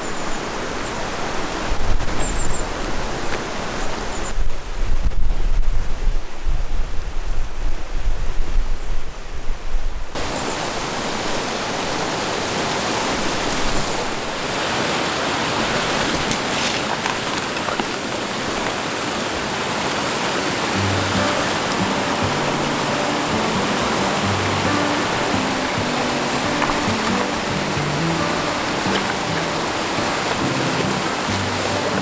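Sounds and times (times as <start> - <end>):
wind buffeting microphone: 0.0 - 32.0
river water rushing: 10.2 - 32.0.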